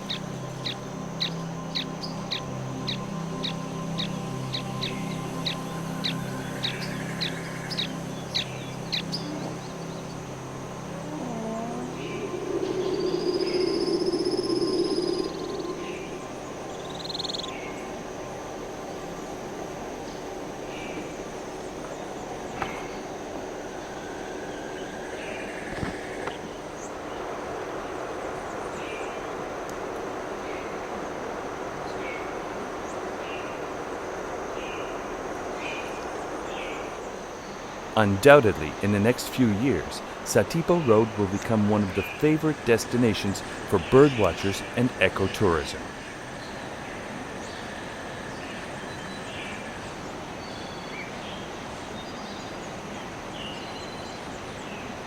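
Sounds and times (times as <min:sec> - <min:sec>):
low buzz: 0:00.0 - 0:18.4
thin high whine: 0:00.0 - 0:18.7
long high even trill: 0:09.2 - 0:16.4
steady rushing noise: 0:11.8 - 0:21.8.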